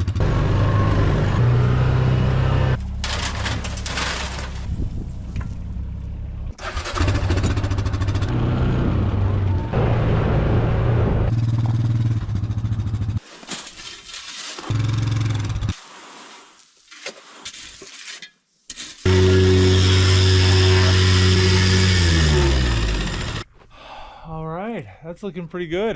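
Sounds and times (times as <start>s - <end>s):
vehicle engine running: 0.0s - 3.0s, 4.9s - 13.2s, 19.1s - 23.4s.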